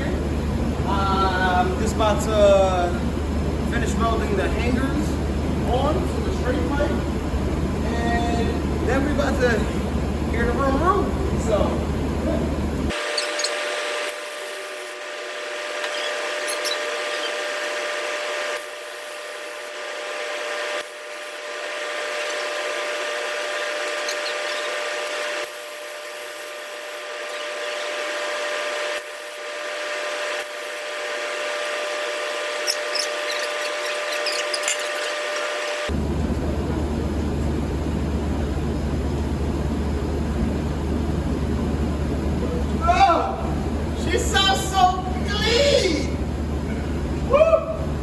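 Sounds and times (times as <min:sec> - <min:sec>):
welder hissing crackle: 0:12.7 - 0:36.0.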